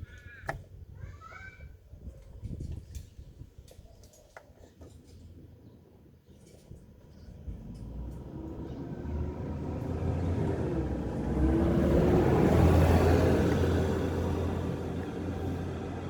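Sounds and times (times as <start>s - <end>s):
vehicle engine rumble passing by: 7.0s - 16.0s.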